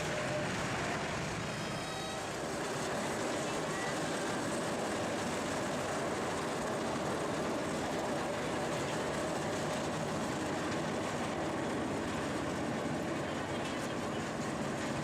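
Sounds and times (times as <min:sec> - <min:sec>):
train wheels running on rails: 0:00.0 - 0:15.0.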